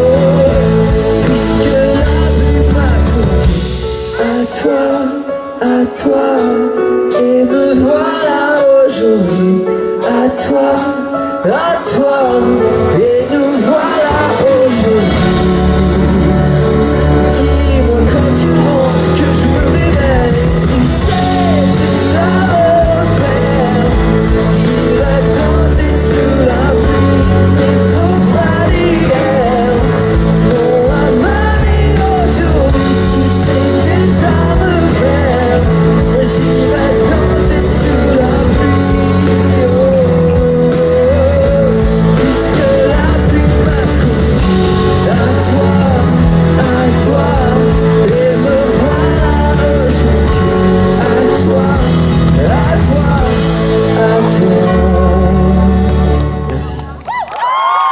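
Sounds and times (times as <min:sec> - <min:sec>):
wordless singing: 0:00.0 - 0:56.8
pop-rock band playing: 0:00.0 - 0:57.9.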